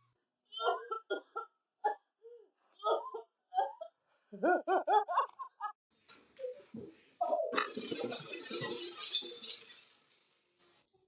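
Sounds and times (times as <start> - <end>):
person laughing: 4.4 - 5.7.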